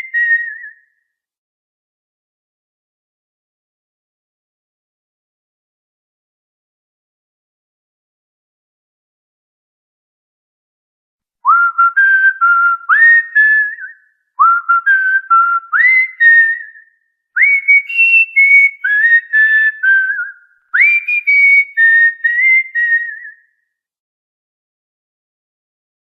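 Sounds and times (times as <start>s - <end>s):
cockatiel whistling a tune: 0.0s - 0.8s, 11.5s - 16.8s, 17.4s - 23.4s.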